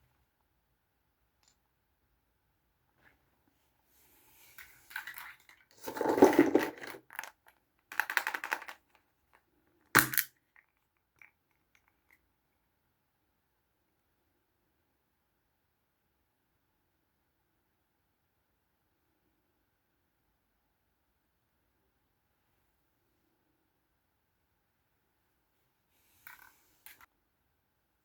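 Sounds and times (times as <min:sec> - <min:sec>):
plastic toys rustling and clattering: 0:04.3 - 0:09.4, 0:26.1 - 0:27.1.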